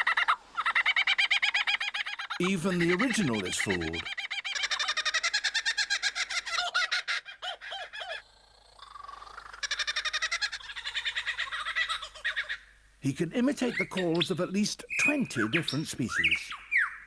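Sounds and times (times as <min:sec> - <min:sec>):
kookaburra laughing call: 0:00.0 - 0:12.8.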